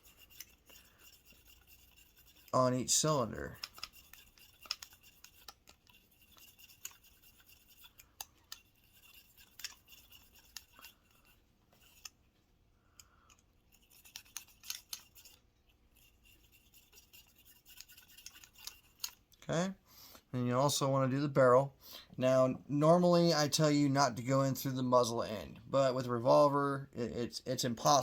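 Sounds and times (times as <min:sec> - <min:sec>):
brush scrubbing metal chambers: 0:00.0 - 0:12.4, 0:13.0 - 0:19.3.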